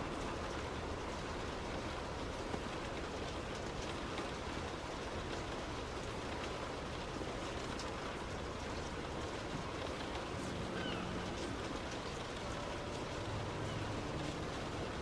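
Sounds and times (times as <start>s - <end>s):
heavy rain on a car: 0.0s - 15.0s
road rumble: 6.0s - 15.0s.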